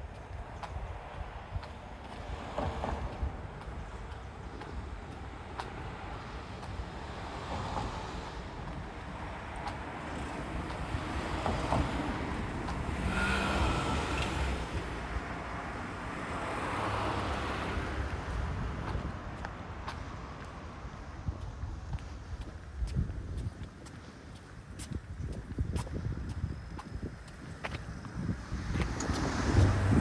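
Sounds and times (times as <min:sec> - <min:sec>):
passing vehicle: 0:00.6 - 0:21.8, 0:28.0 - 0:30.0.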